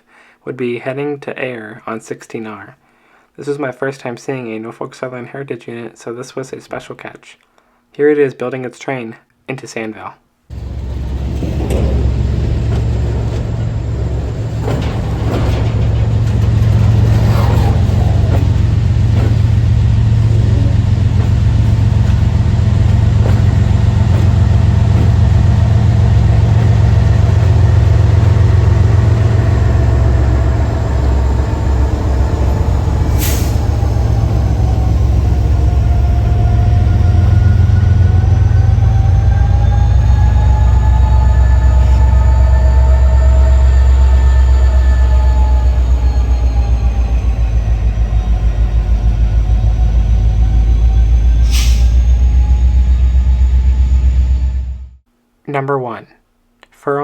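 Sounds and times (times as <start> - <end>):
diesel locomotive engine drone: 10.5 - 55.1
air hissing: 17.6 - 35.3, 51.4 - 52.0.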